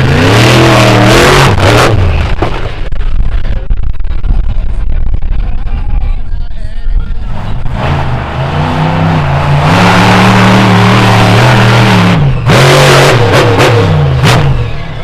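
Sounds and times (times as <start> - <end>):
monster truck engine revving: 0.0 - 2.9, 7.2 - 15.0.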